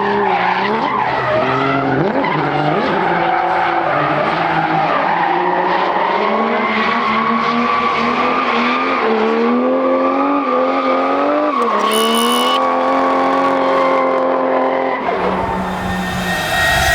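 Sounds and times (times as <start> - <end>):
tyres squealing: 11.6 - 12.7.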